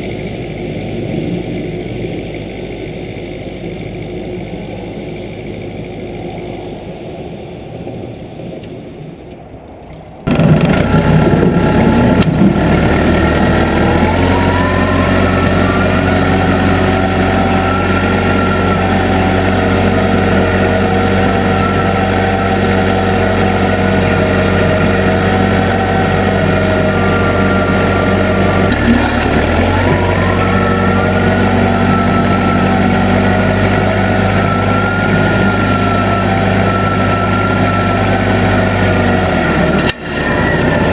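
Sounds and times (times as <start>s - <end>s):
wavering whine: 0.0s - 40.9s
backhoe engine revving: 10.2s - 40.9s.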